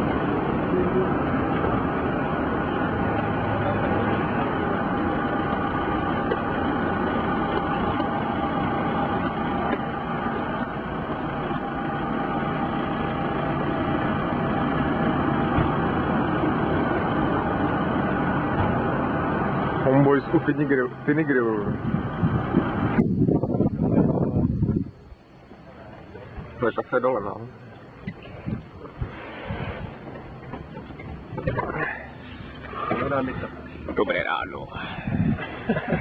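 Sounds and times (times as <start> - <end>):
engine droning steadily: 0.0 - 36.0.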